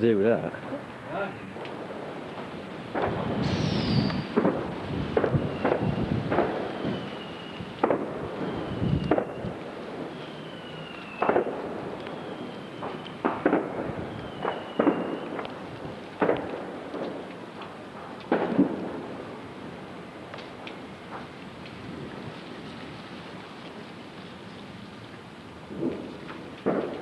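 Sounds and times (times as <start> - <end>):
fireworks bangs and cracks: 0.0 - 22.6, 25.5 - 27.0
fireworks whistles: 2.3 - 17.3.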